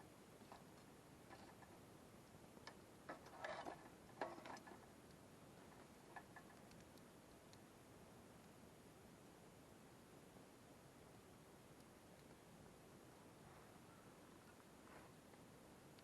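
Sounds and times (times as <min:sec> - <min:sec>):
campfire crackling: 0:00.3 - 0:09.8, 0:11.0 - 0:13.2.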